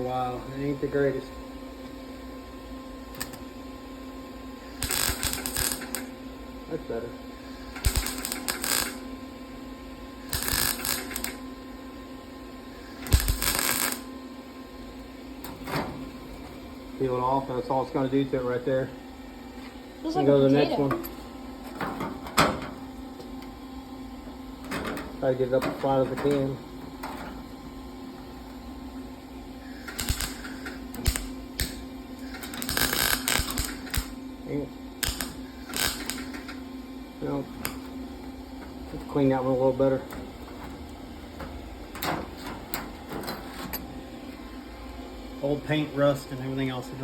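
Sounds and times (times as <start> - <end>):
welder crackling: 3.1 - 3.4, 4.7 - 6.1, 7.6 - 9.1, 10.2 - 11.4, 12.9 - 14.1, 29.8 - 34.2, 35.0 - 36.6
low hum: 7.6 - 9.0.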